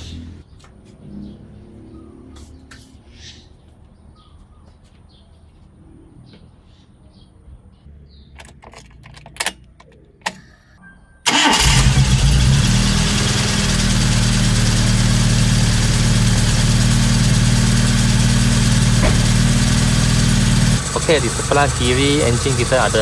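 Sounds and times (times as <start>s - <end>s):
car engine starting and idling: 11.2s - 23.0s.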